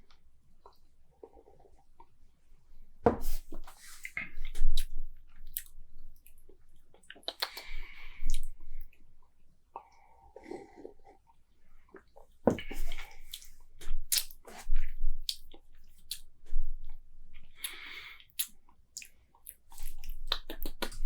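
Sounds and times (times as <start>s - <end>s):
person slurping and smacking lips: 7.1s - 8.6s, 17.5s - 21.0s.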